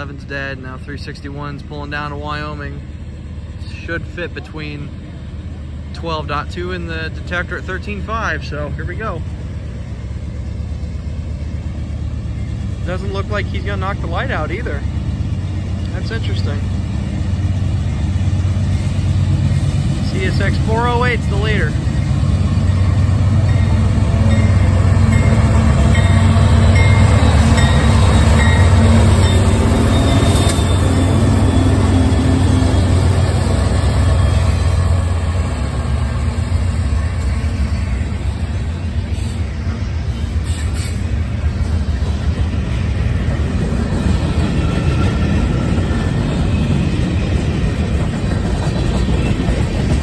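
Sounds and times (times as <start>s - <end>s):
freight train rumbling past: 0.0s - 50.0s
locomotive low drone: 0.0s - 50.0s
high-pitched wheel squeals: 28.5s - 33.0s.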